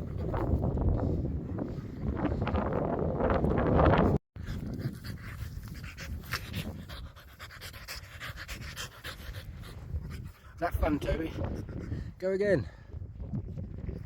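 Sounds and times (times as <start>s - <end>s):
wind noise on microphone: 0.0s - 14.0s
dog panting: 4.4s - 12.2s.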